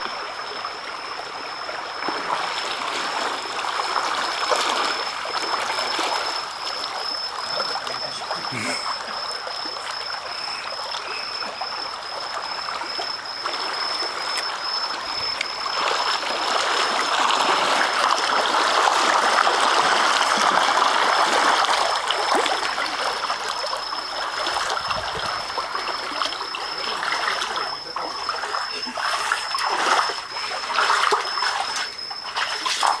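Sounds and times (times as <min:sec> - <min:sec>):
floodwater rushing: 0:07.3 - 0:11.9, 0:24.2 - 0:33.0.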